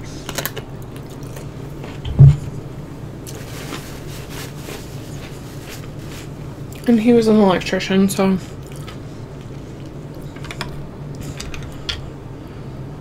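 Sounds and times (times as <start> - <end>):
steady low hum: 0.0 - 13.0
dull thump: 2.0 - 2.5.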